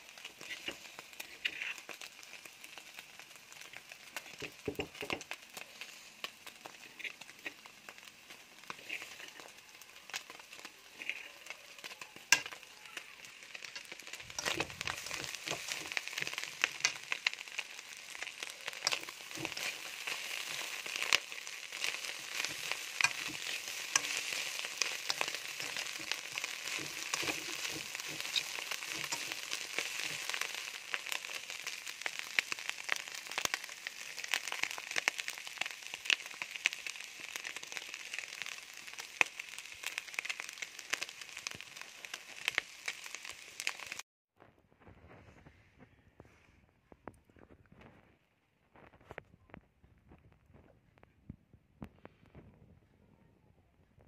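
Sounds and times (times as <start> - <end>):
meat sizzling in a wok: 0.0 - 44.0
metal spoon stirring in wok: 0.1 - 2.8, 6.6 - 32.6.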